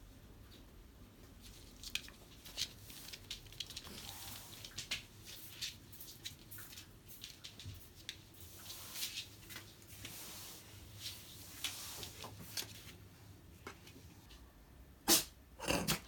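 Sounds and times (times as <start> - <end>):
dog sneezing: 15.0 - 16.0.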